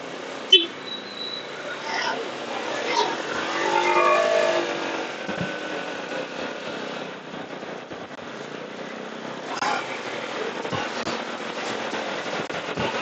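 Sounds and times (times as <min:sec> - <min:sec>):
motorcycle engine: 0:02.2 - 0:08.5.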